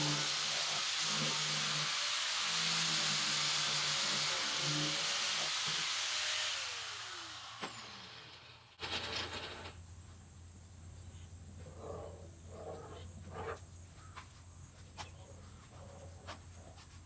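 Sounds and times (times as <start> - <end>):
machine hissing and winding down: 0.0 - 8.7.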